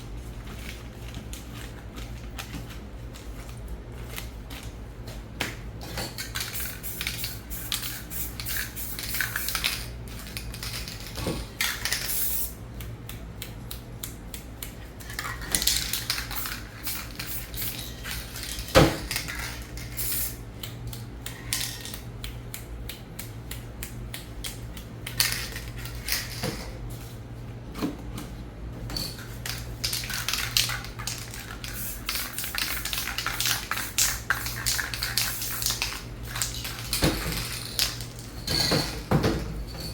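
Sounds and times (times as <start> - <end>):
steady low hum: 0.0 - 39.9
spray paint hissing: 6.4 - 9.8, 12.0 - 12.6, 15.9 - 18.4, 19.9 - 20.4, 29.9 - 36.8.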